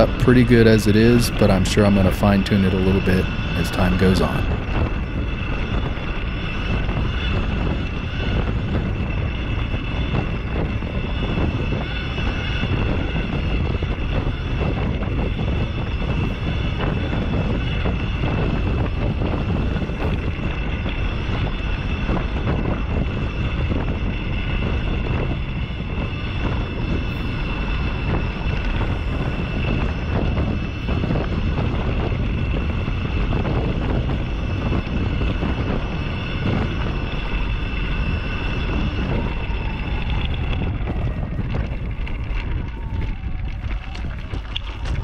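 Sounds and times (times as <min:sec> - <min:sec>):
electric motor whine: 0:00.0 - 0:45.0
wind on microphone: 0:00.0 - 0:45.0
tyres on dirt trail: 0:34.0 - 0:45.0.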